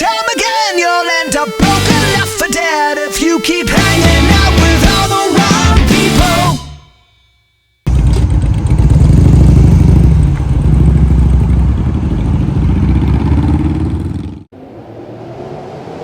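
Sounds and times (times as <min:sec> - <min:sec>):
motorcycle engine running: 0:07.9 - 0:14.5.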